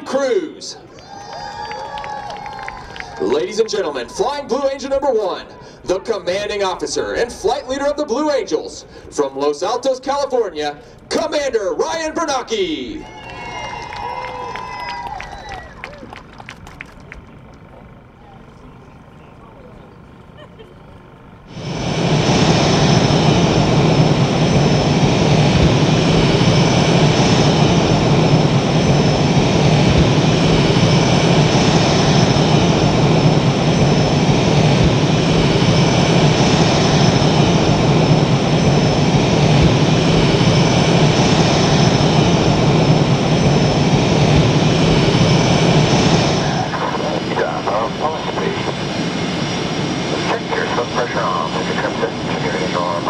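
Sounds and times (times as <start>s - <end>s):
high engine whine: 0.0s - 53.0s
jet engines roaring: 0.0s - 53.0s.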